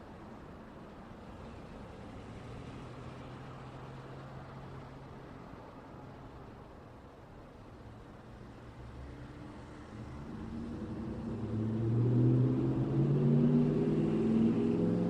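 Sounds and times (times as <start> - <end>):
vehicle engine approaching: 8.4 - 15.0.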